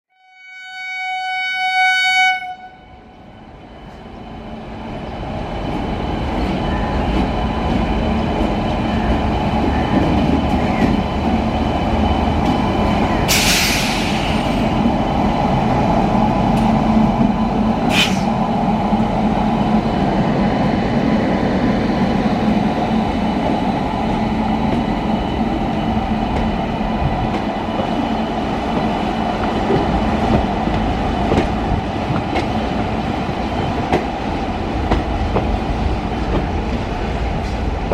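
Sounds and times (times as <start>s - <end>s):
locomotive horn blast: 0.1s - 3.0s
moving train rumble: 2.4s - 37.9s.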